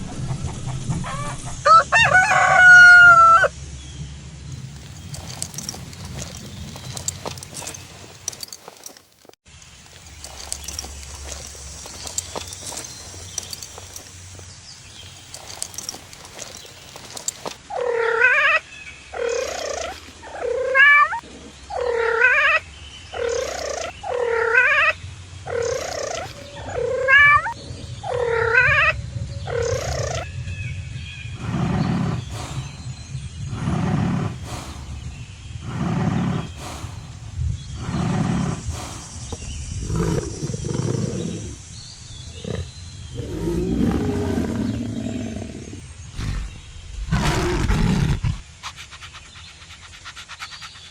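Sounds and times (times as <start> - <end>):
deep low animal calls: 15.1 - 30.3, 31.4 - 39.1, 42.3 - 49.1.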